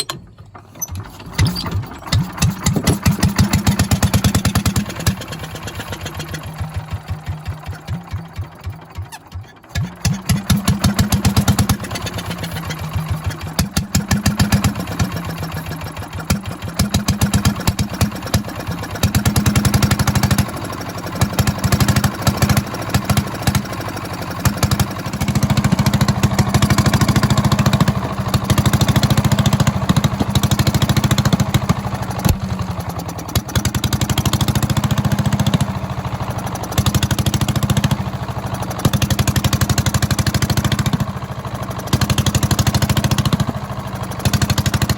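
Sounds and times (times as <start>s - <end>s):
stationary engine running: 0.0s - 44.9s.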